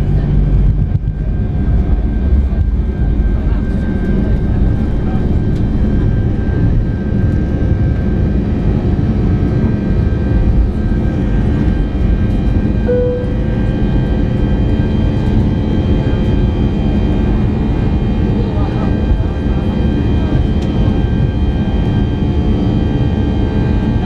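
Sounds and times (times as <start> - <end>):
aircraft cabin engine noise: 0.0 - 24.0
brief tone: 12.8 - 14.0.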